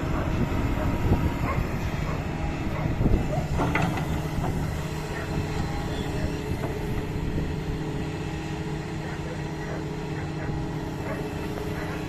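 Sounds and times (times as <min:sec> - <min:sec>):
excavator diesel engine running: 0:00.0 - 0:12.0
knocks and clanks: 0:03.5 - 0:04.7.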